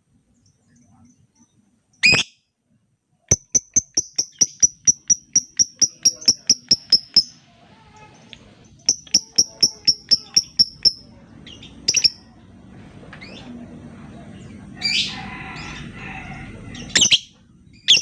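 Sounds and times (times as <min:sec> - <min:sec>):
lovebird ticking chirps: 0:03.3 - 0:07.4, 0:08.8 - 0:11.1, 0:11.9 - 0:12.2.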